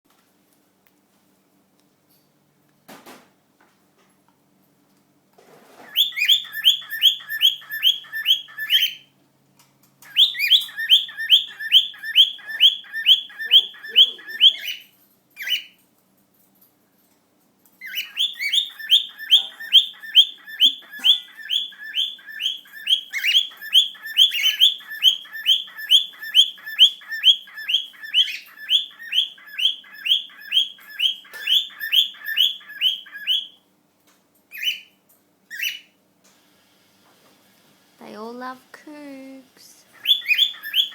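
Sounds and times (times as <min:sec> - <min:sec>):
cockatiels whistling chirps: 0:05.8 - 0:09.1, 0:10.0 - 0:15.8, 0:17.8 - 0:33.6, 0:34.5 - 0:34.9, 0:35.5 - 0:35.9, 0:40.0 - 0:40.9.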